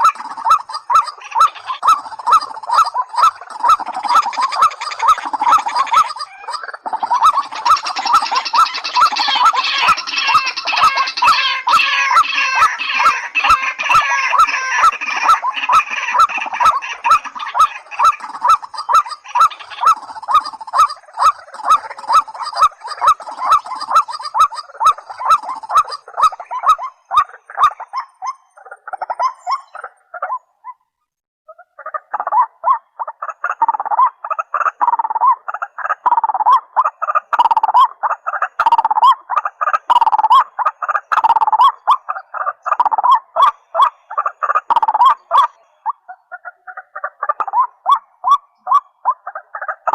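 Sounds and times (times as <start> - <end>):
rails calling rhythmically: 0.0 - 29.9.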